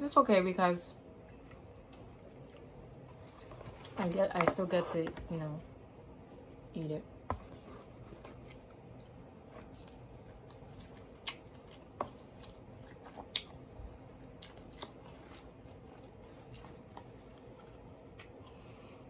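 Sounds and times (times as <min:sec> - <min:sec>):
soft chewing: 0:01.2 - 0:04.0, 0:07.4 - 0:19.0.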